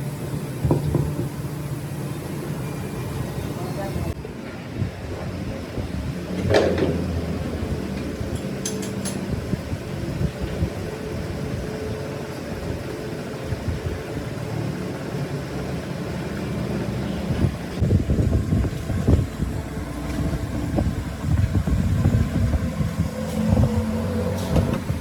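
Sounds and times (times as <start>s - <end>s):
machine humming: 0.0s - 4.2s.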